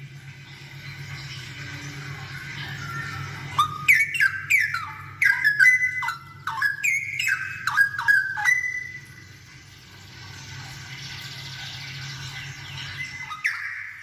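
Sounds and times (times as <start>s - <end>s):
bird singing whistled notes: 2.8s - 9.0s, 13.0s - 14.0s.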